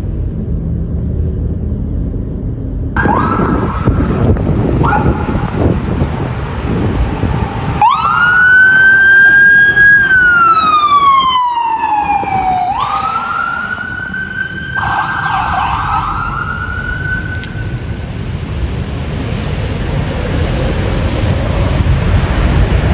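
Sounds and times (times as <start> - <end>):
engine and road rumble: 0.0 - 22.9
second siren: 3.0 - 5.9, 6.7 - 18.0
emergency siren wailing: 3.0 - 18.4.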